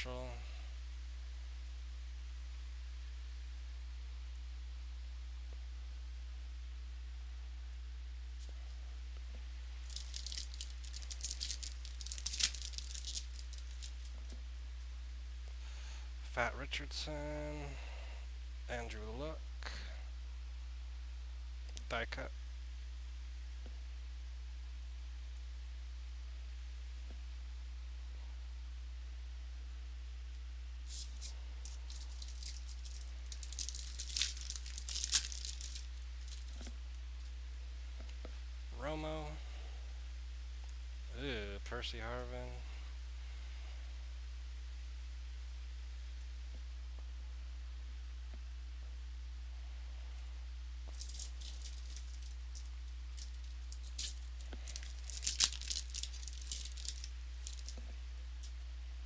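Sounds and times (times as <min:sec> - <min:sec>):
low electrical hum: 0:00.0 - 0:59.0
wrapper crinkling and tearing: 0:09.8 - 0:14.3, 0:30.9 - 0:36.7, 0:50.9 - 0:58.5.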